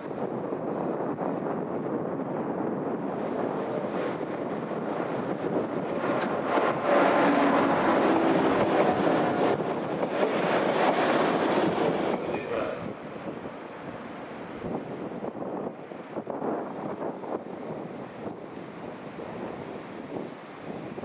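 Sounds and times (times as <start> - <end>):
train rushing past: 3.0 - 14.8.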